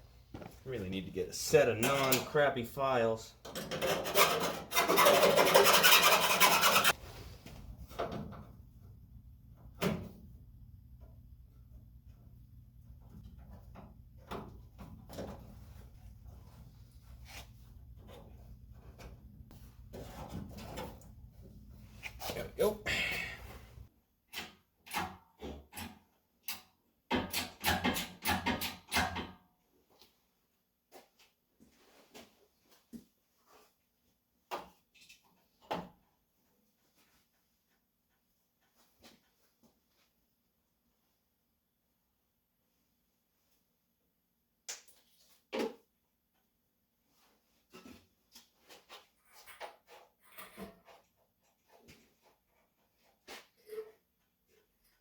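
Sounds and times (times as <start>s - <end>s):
hand file rasping: 3.8s - 7.0s.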